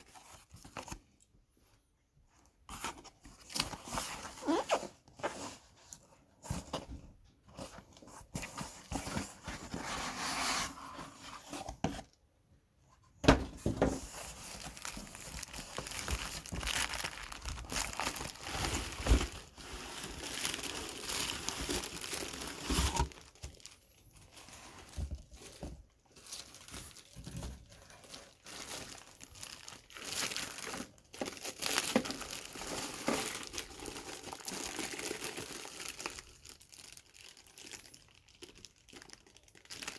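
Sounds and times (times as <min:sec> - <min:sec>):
packaging crinkling and tearing: 0:14.0 - 0:39.9.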